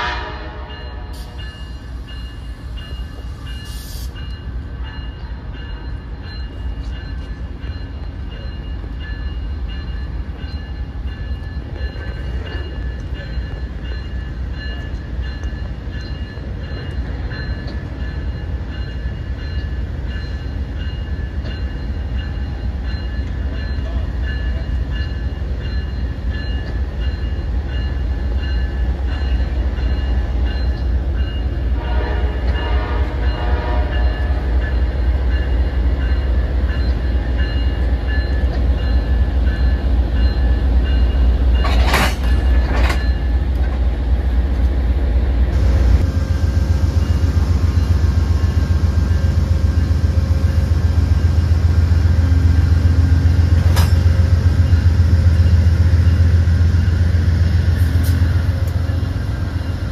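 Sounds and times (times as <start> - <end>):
train horn: 0.0 - 1.3, 31.7 - 34.6
train rumbling: 0.0 - 59.9.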